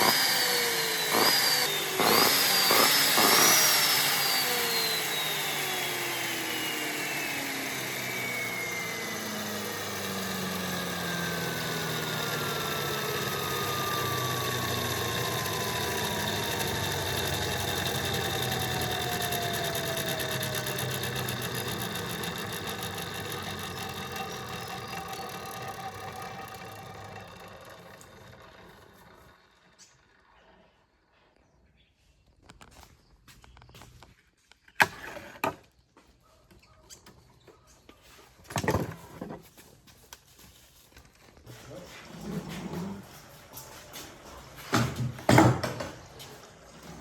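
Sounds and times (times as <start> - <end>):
motor whine spinning down: 0.0 - 30.9.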